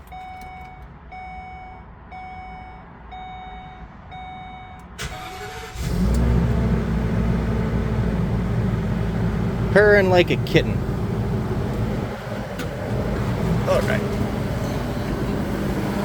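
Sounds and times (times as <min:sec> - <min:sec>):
dashboard warning chime: 0:00.0 - 0:05.3
engine idling: 0:05.0 - 0:16.0.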